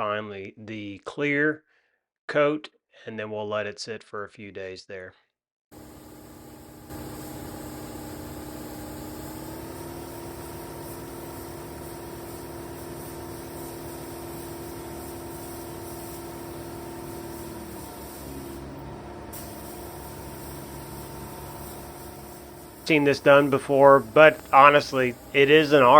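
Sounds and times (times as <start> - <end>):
hiss: 5.8 - 25.9
motor humming: 5.8 - 25.9.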